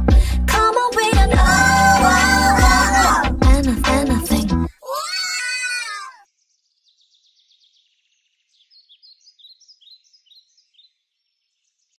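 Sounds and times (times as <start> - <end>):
bird chirping: 6.3 - 12.0.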